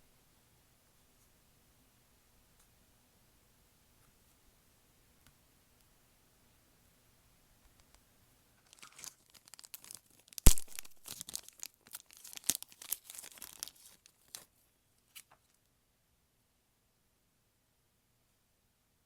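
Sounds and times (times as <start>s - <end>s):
slime crackling and popping: 8.7s - 14.4s.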